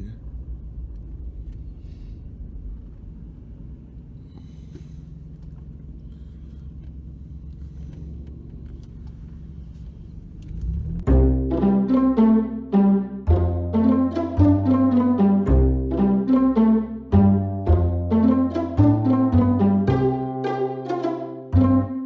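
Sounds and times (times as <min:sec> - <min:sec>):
car engine and road noise: 0:00.0 - 0:22.0
music with plucked and bowed strings: 0:10.6 - 0:22.0.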